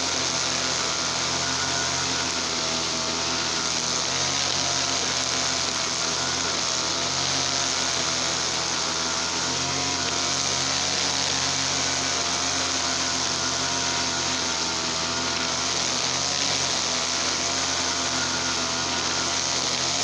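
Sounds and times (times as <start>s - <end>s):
brush cutter engine running: 0.0s - 20.0s.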